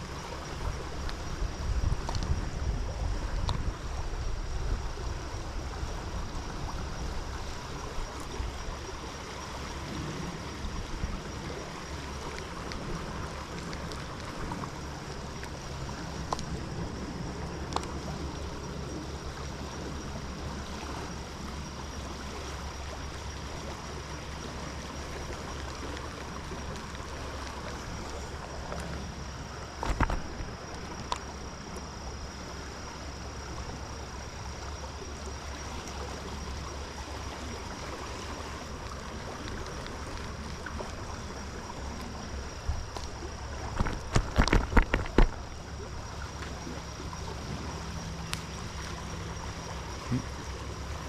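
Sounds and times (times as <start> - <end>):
stream water flowing: 0.0 - 51.0
wind rumbling on microphone: 0.0 - 51.0
faint clicks: 16.2 - 16.6, 48.2 - 48.6.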